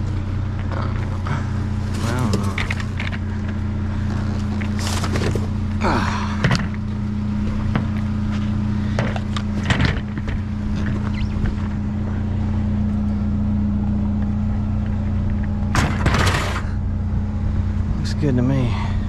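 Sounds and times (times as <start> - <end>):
vehicle engine idling: 0.0 - 19.0
knocks and clatters of items: 2.0 - 3.2, 9.0 - 11.6.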